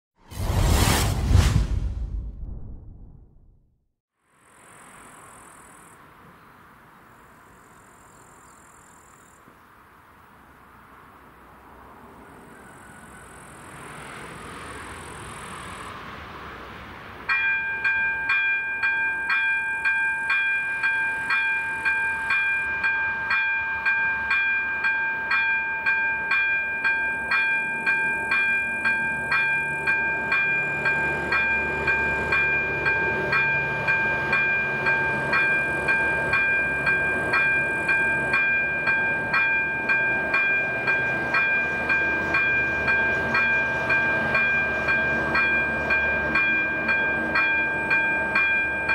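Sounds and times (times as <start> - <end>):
low rumble: 0.2 - 3.8
pulsing ringing alarm: 17.6 - 48.9.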